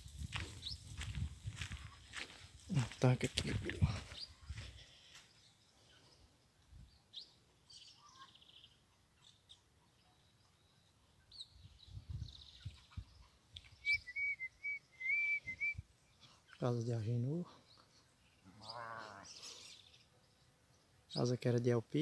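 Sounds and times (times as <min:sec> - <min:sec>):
small birds chirping: 0:00.0 - 0:22.0
whistled bird notes: 0:13.7 - 0:15.9.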